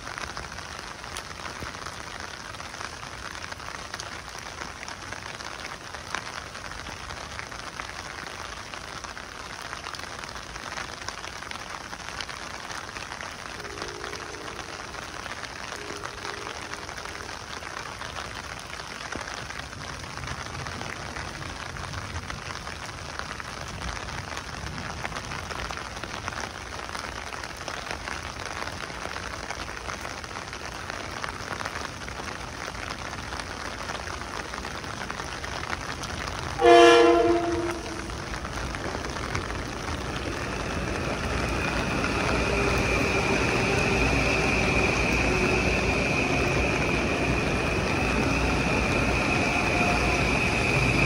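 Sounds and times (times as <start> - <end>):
heavy rain pouring: 0.0 - 51.0
train horn blast: 13.5 - 17.4, 36.6 - 38.3.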